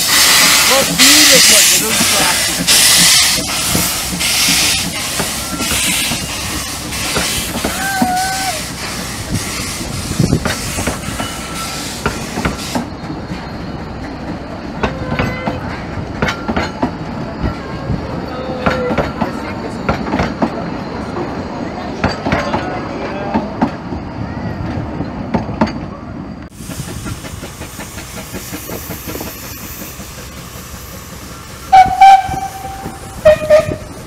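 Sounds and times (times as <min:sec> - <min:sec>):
pulsing steam hiss: 0:00.0 - 0:12.9, 0:26.5 - 0:34.0
wheel flange squeals: 0:00.0 - 0:25.3, 0:27.1 - 0:34.0
train wheels clicking over rail joints: 0:00.0 - 0:34.0.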